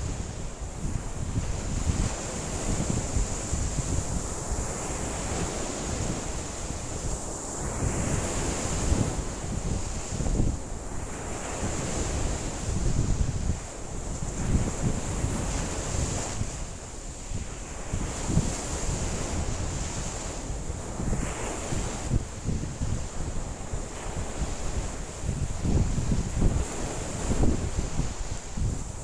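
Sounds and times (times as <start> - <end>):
waves breaking and washing in: 0.0 - 29.0
wind buffeting microphone: 0.0 - 29.0.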